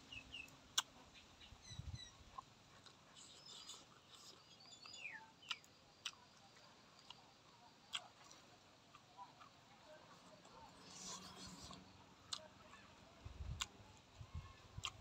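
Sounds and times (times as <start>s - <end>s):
faint bird chirps: 0.0s - 2.4s, 3.1s - 5.8s
faint chewing: 0.1s - 15.0s
mouth clicks and smacks: 14.8s - 15.0s.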